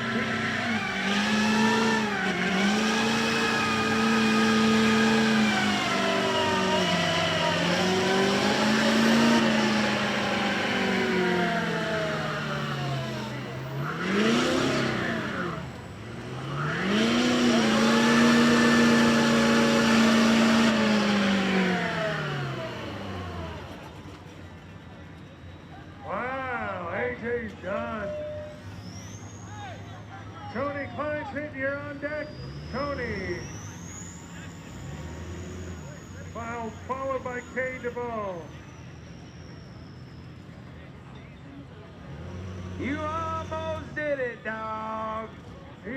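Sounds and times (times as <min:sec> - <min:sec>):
truck engine revving high: 0:00.0 - 0:45.9.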